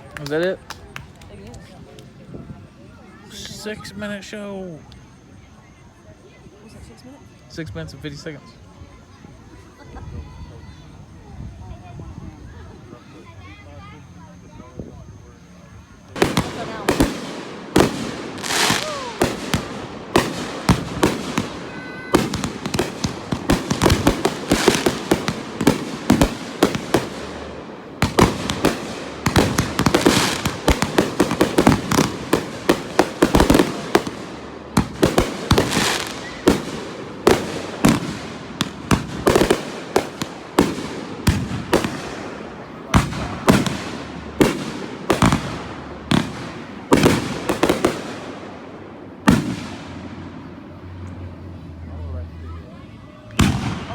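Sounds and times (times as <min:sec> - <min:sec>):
fireworks crackling: 0:00.0 - 0:05.5, 0:15.1 - 0:51.0, 0:53.2 - 0:53.9
fireworks bangs: 0:16.0 - 0:50.6, 0:53.3 - 0:53.9.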